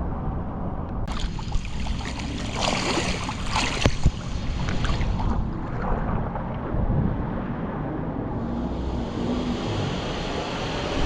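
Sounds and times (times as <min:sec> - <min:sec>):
low car rumble: 0:00.0 - 0:11.0
hiss of water spray: 0:08.9 - 0:11.0.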